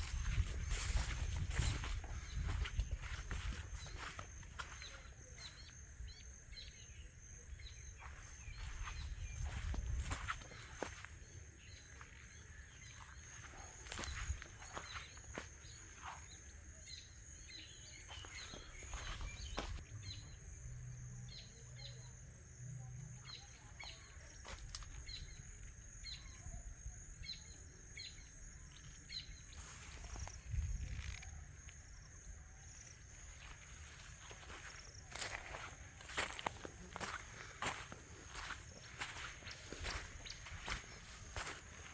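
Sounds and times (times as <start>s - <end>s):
bird chirping: 0.0s - 22.1s.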